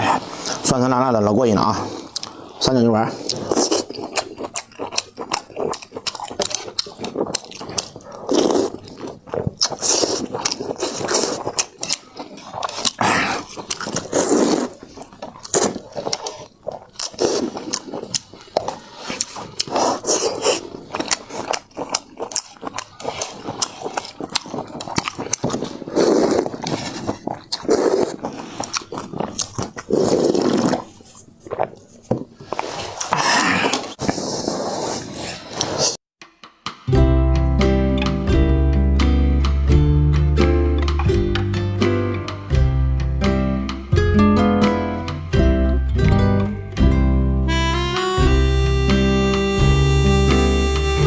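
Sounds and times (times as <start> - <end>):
chewing and slurping noodles: 1.6 - 36.0.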